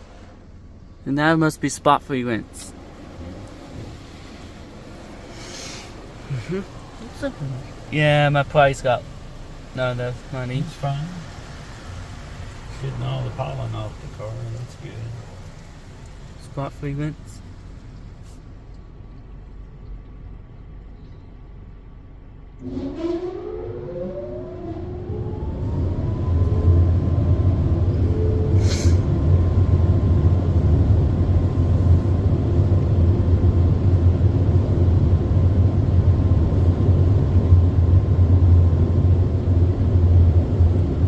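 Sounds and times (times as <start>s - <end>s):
fans spinning up whine: 0.0s - 19.2s, 21.0s - 41.0s
car wash dryer blowers: 0.0s - 19.8s, 22.6s - 41.0s.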